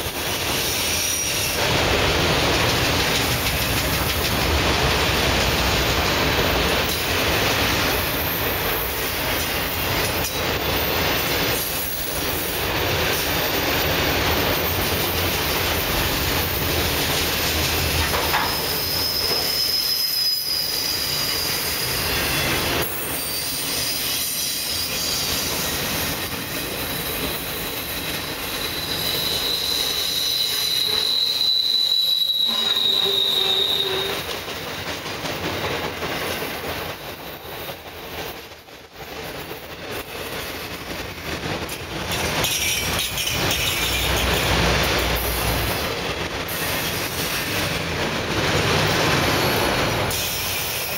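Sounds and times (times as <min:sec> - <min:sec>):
steel wheels rumbling on rails: 0:00.0 - 0:50.9
wheel squeals: 0:17.5 - 0:34.4, 0:42.4 - 0:44.5.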